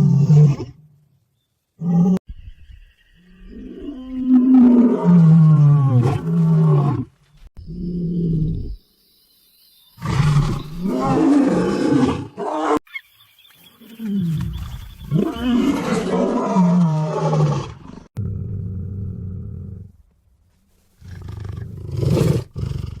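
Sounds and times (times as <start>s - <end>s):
tiger roaring: 15.1s - 19.9s.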